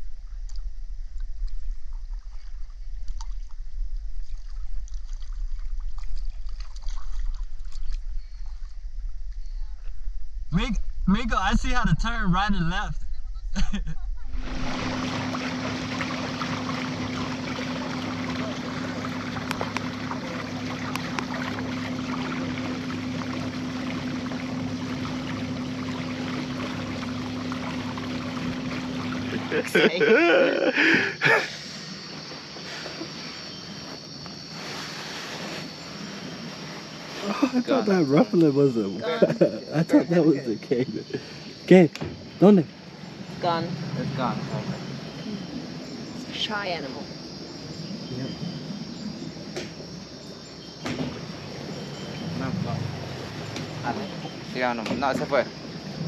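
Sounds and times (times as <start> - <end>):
water splashing around boat: 0.0 - 8.8, 14.3 - 56.0
steady low rumble: 0.0 - 32.2, 39.4 - 56.0
paddle dipping in water: 0.3 - 8.8, 14.4 - 37.6
outboard motor humming: 10.6 - 56.0.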